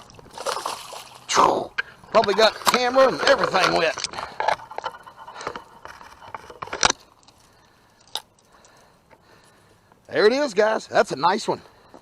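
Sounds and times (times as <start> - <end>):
clicks rattles and scraping: 1.8 - 9.2.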